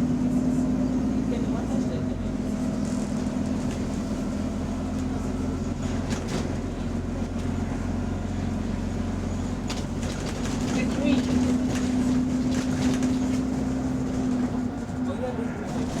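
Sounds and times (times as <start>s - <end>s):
bus engine droning: 0.0s - 16.0s.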